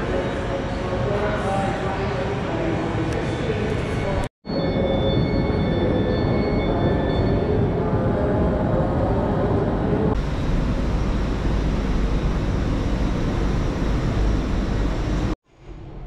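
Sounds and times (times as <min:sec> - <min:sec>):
electric train whirring: 0:10.2 - 0:15.4.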